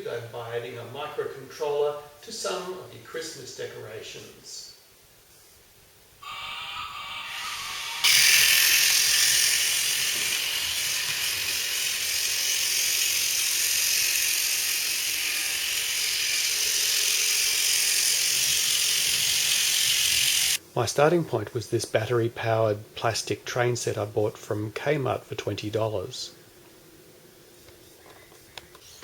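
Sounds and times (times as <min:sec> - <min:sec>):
toy train motor whirring: 0:06.2 - 0:20.6.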